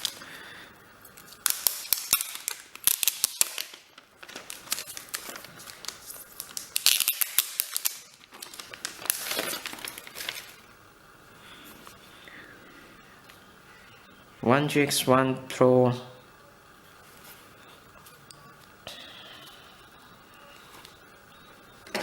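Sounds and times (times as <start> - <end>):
packaging rustling: 0.0 - 0.2, 1.1 - 10.7.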